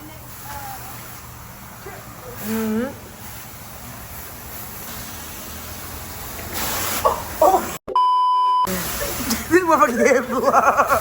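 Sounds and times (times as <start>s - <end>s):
censor bleep: 7.9s - 8.7s
voice: 8.7s - 11.0s.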